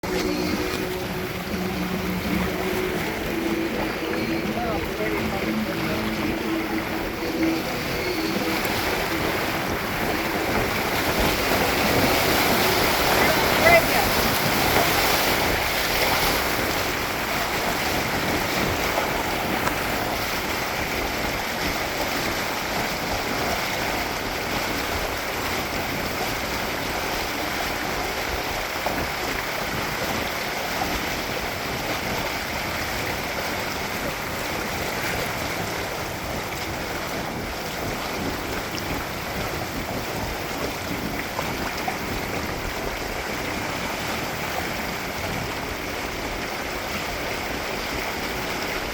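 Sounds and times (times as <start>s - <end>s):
water rushing along hulls: 0.0s - 48.9s
wind buffeting microphone: 0.0s - 48.9s.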